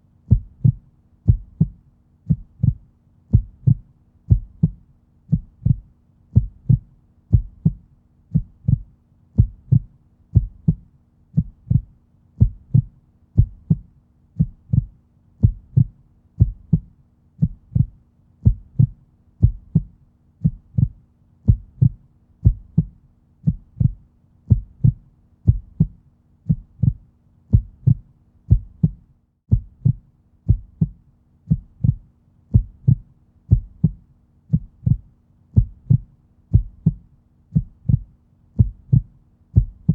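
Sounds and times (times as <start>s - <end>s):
heartbeat thumps: 0.3s - 39.9s.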